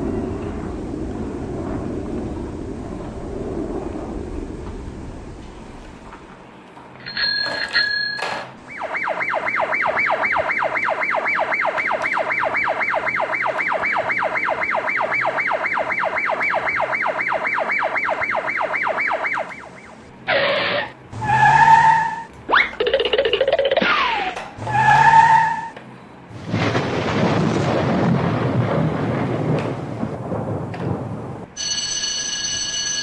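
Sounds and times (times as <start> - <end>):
toy siren wailing: 7.1 - 25.8.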